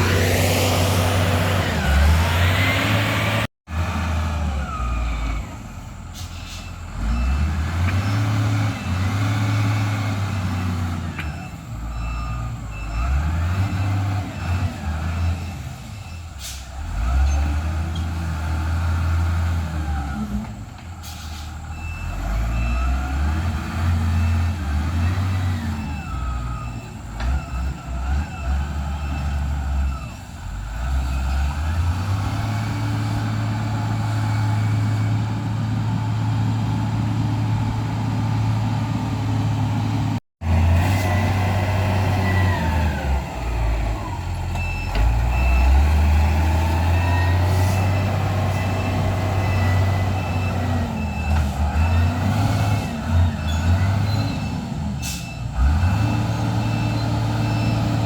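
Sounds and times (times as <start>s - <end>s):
heavy diesel engines revving: 0.0s - 58.0s
reversing alarm beeping: 44.5s - 47.0s, 53.4s - 58.0s.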